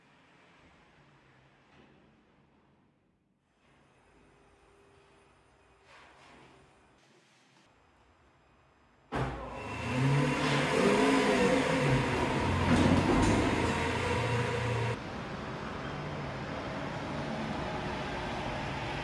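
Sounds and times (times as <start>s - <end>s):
car engine revving: 9.6s - 15.0s.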